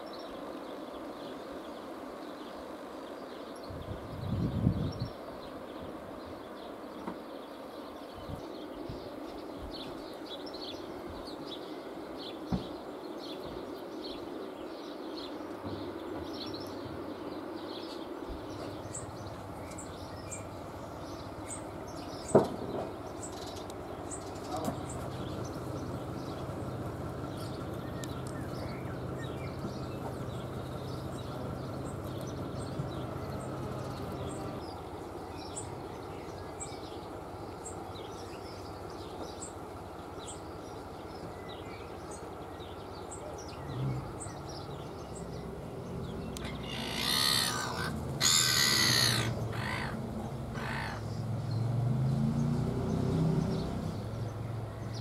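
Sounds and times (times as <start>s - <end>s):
sparrows chirping: 0.0s - 55.0s
loud harsh bird calls: 41.9s - 51.3s.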